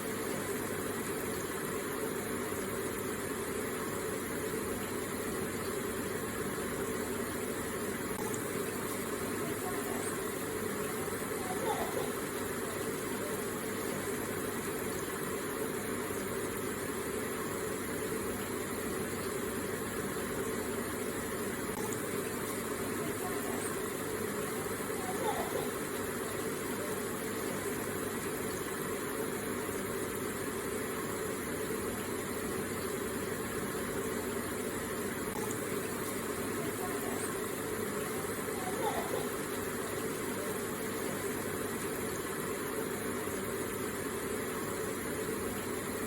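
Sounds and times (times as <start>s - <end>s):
water trickling and splashing: 0.0s - 46.0s.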